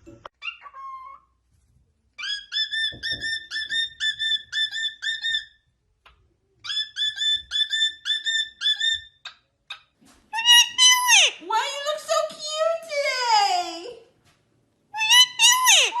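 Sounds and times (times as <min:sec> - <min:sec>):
parrot whistling and chirping: 0:02.2 - 0:05.6, 0:06.6 - 0:09.4, 0:10.4 - 0:11.3, 0:15.0 - 0:16.0.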